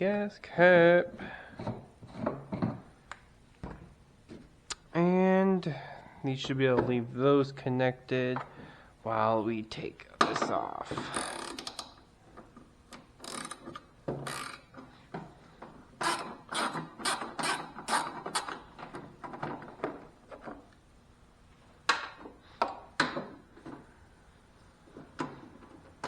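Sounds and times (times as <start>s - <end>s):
hand ratchet clicking: 11.1s - 12.0s, 12.9s - 14.7s, 16.0s - 18.6s.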